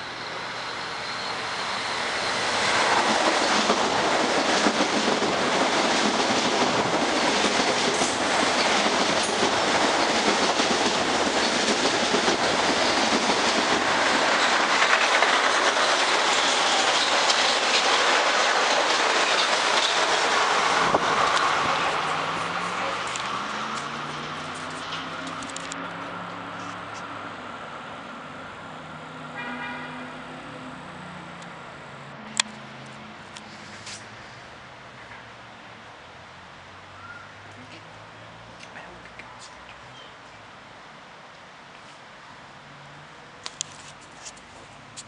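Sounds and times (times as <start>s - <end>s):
train wheels rushing on rail: 0.1s - 27.9s.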